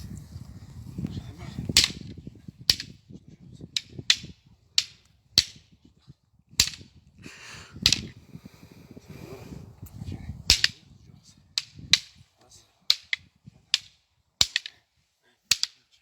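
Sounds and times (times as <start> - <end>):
wooden sticks striking: 1.7 - 5.8, 6.6 - 7.0, 7.8 - 8.2, 10.5 - 10.9, 11.5 - 14.9, 15.5 - 16.0.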